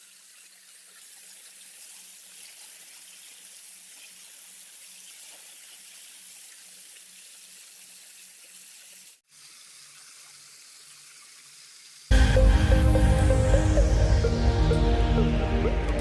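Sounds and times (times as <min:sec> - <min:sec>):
water running: 0:00.0 - 0:16.0
loud music: 0:12.1 - 0:16.0.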